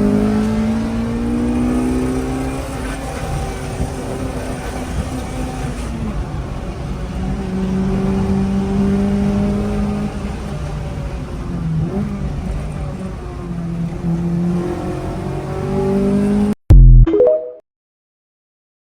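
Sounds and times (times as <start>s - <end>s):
car engine revving high: 0.0s - 3.4s.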